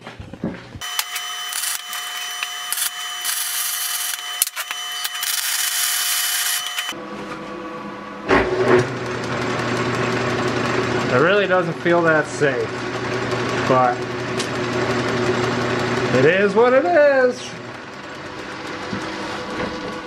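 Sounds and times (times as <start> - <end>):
angle grinder cutting metal: 0.8 - 7.0
metal lathe humming: 0.8 - 20.0.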